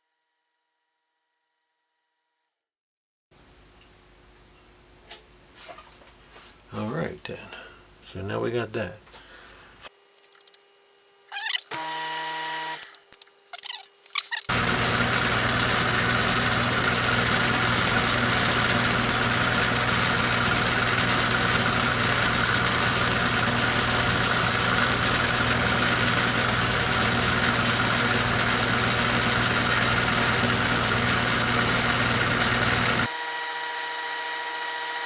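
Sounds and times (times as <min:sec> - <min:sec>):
electric motor humming: 0:14.5 - 0:35.0
small ticks: 0:21.4 - 0:28.2.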